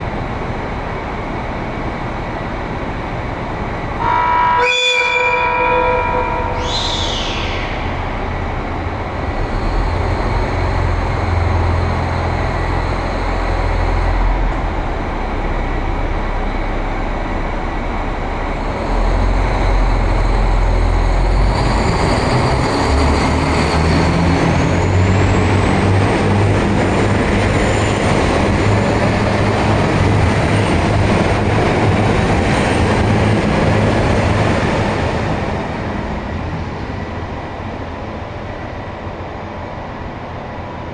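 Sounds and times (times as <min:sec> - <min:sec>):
diesel train engines droning: 0:00.0 - 0:40.9
high whine: 0:04.0 - 0:09.1.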